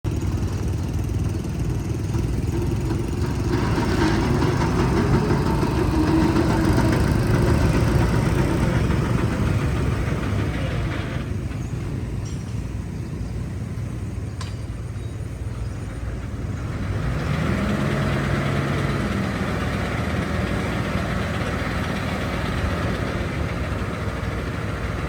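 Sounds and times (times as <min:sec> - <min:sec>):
heavy diesel machinery rumbling: 0:00.0 - 0:25.0.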